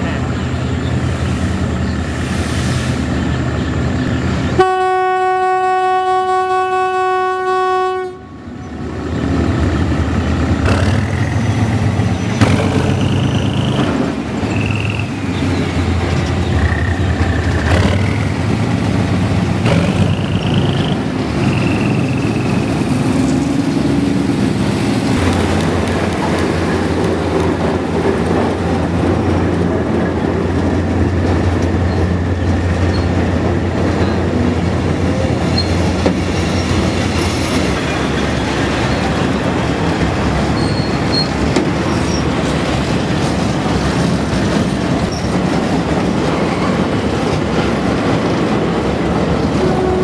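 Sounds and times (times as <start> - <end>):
diesel locomotive running: 0.0 - 50.0
train horn blast: 4.6 - 8.5, 49.6 - 50.0
wheels clattering on bridge: 10.6 - 22.8
wheel squeals: 40.6 - 42.3.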